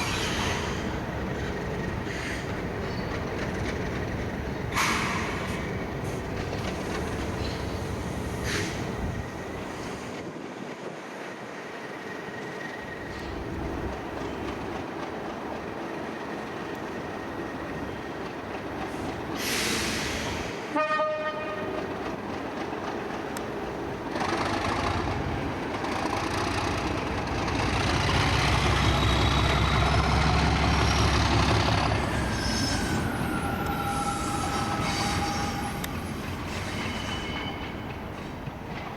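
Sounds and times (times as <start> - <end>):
train rumble: 0.0 - 38.9
train horn toot: 20.7 - 21.8.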